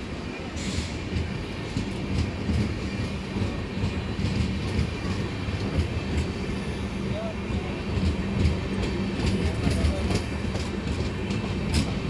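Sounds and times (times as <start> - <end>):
train wheels rumbling on rails: 0.0 - 12.0
wheels clicking over rail joints: 7.2 - 12.0.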